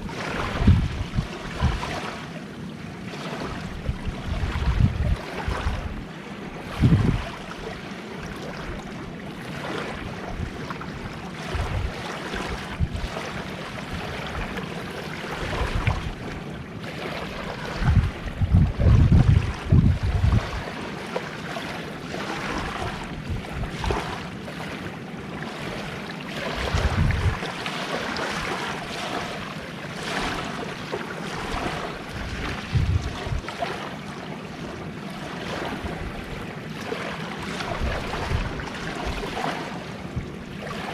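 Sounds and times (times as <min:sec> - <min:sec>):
wind buffeting microphone: 0:00.0 - 0:02.2, 0:03.4 - 0:09.1, 0:09.8 - 0:20.8, 0:22.3 - 0:24.3, 0:26.4 - 0:33.8, 0:35.5 - 0:36.6, 0:37.4 - 0:40.9
sea waves washing onto shore: 0:00.0 - 0:40.9.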